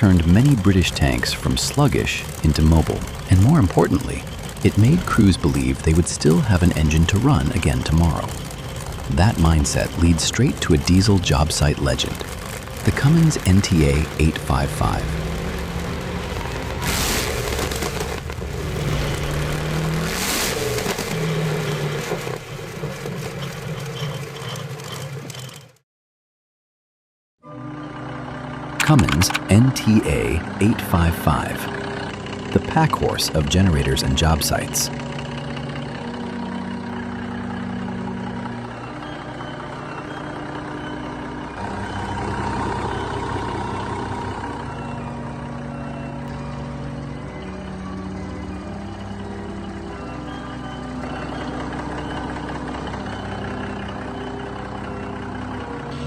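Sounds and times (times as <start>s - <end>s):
large engine running: 0.0s - 25.6s, 27.6s - 56.0s
loud rushes of noise: 1.0s - 22.9s.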